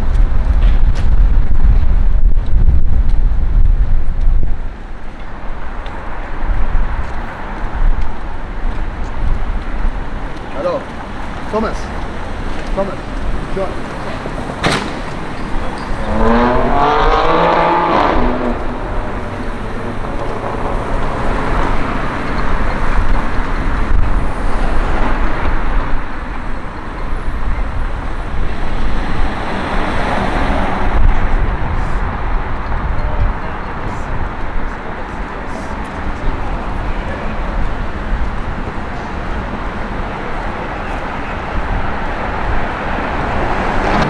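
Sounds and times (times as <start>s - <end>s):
cars driving past: 4.6s - 44.0s
car engine accelerating: 6.1s - 32.7s, 35.6s - 44.0s.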